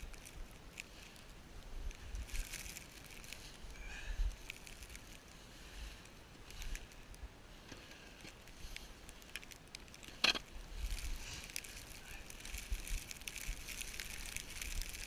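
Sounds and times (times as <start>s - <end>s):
footsteps crunching in snow: 10.6s - 15.0s.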